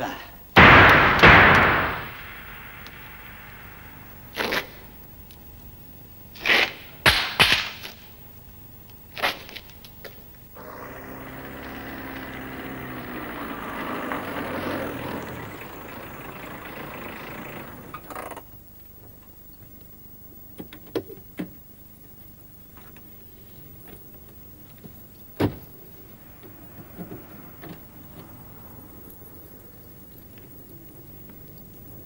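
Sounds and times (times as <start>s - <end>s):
sharp knocks: 0.6s - 4.2s
car engine running: 10.6s - 18.1s.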